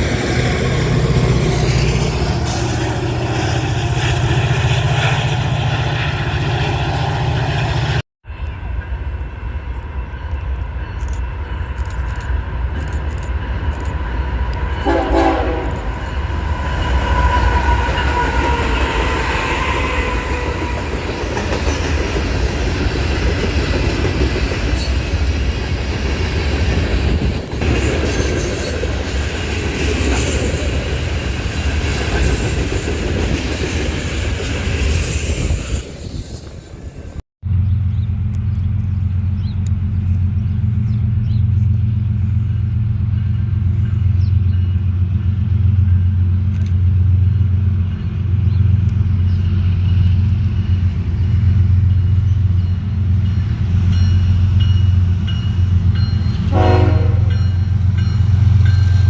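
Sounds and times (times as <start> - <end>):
diesel train rumble: 0.0 - 59.0
multi-tone train horn: 14.7 - 16.3, 56.4 - 58.0.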